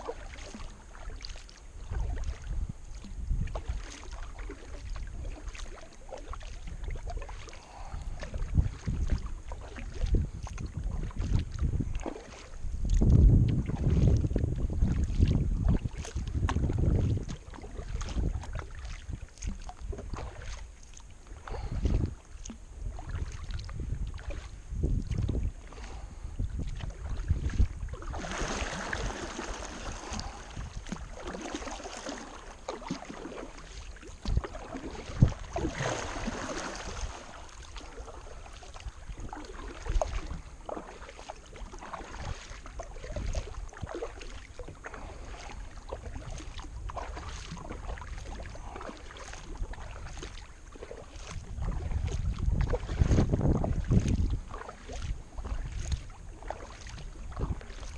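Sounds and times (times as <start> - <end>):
paddle splashing in water: 0.0 - 57.9
wind buffeting microphone: 1.8 - 3.9, 6.6 - 20.6, 21.2 - 32.2, 34.2 - 40.8, 44.7 - 50.4, 51.1 - 57.9.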